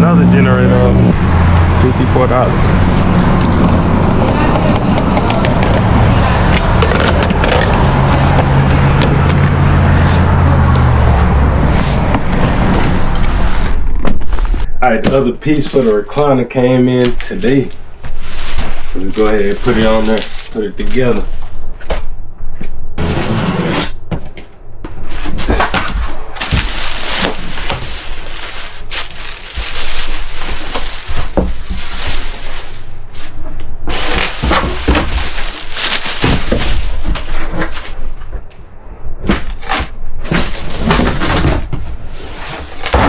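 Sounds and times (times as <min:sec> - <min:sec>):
packaging crackling and rustling: 0:03.0 - 0:10.9, 0:17.2 - 0:22.0, 0:25.1 - 0:38.1, 0:39.3 - 0:43.0.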